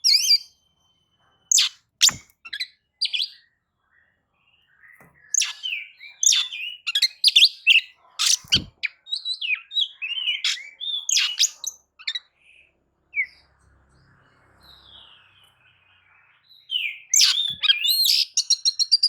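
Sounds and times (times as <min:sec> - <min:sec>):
bird singing whistles and trills: 0:00.0 - 0:03.5, 0:04.7 - 0:13.4, 0:14.8 - 0:19.0.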